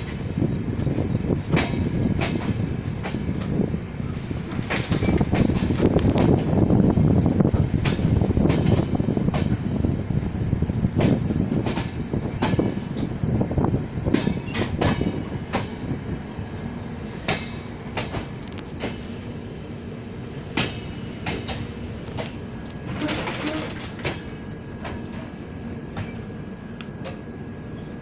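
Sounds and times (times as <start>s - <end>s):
train rumble: 0.0s - 28.0s
wheels clacking over rail joints: 0.9s - 6.7s, 11.0s - 13.3s, 14.0s - 16.0s, 16.7s - 19.3s, 20.5s - 27.3s.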